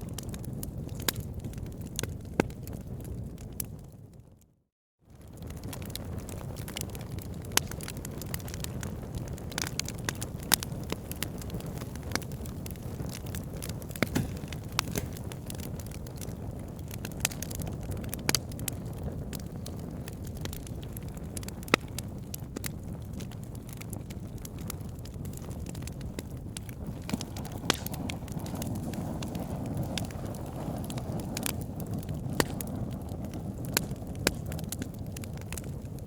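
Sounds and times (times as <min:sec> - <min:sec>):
wood fire crackling: 0:00.0 - 0:04.2, 0:05.1 - 0:36.0.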